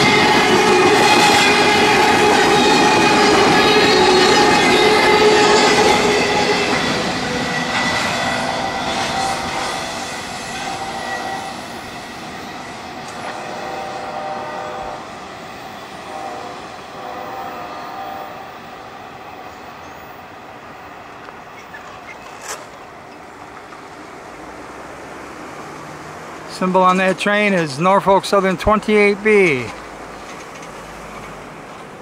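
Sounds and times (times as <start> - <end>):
high wheel squeal: 0.0 - 14.9
freight train cars rolling: 0.0 - 32.0.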